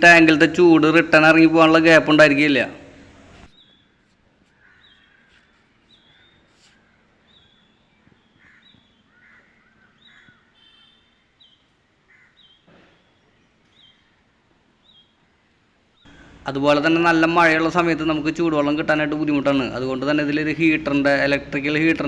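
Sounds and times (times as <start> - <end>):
harsh bird calls: 2.9 - 22.0
high bird chirps: 3.4 - 14.2.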